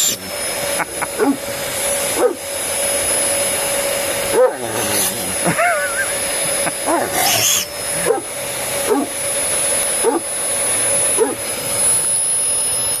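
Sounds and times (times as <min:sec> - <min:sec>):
vacuum cleaner whining: 0:00.0 - 0:13.0
dog barking: 0:01.2 - 0:01.4, 0:02.2 - 0:02.4, 0:04.3 - 0:05.3, 0:06.8 - 0:08.3, 0:08.9 - 0:09.1, 0:10.0 - 0:10.3, 0:11.2 - 0:11.4.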